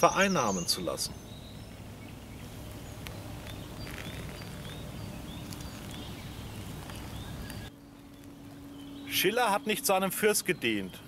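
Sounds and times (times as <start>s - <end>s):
bird chirping: 0.0s - 11.0s
low rumble on microphone: 1.1s - 9.2s.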